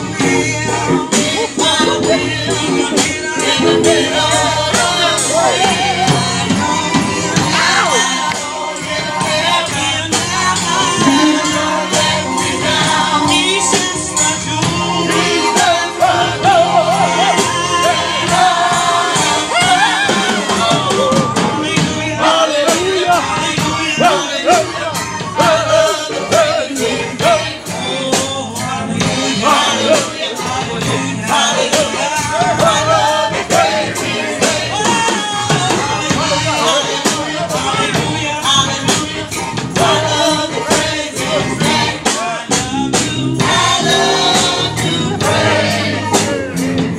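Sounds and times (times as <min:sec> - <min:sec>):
gospel music with singing: 0:00.0 - 0:46.9
tambourine beats: 0:00.0 - 0:46.9.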